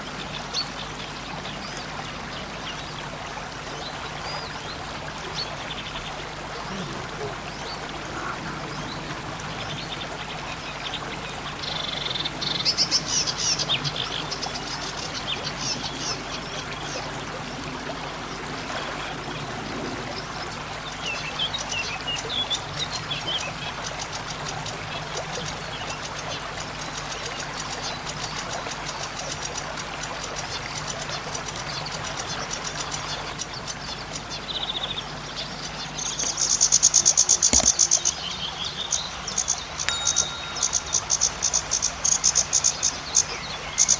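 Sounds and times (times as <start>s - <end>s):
rapid high ticking notes: 39.9s - 41.7s.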